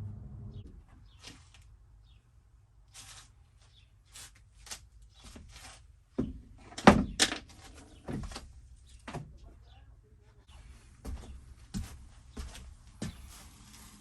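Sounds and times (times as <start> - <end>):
rustling: 2.8 - 5.9.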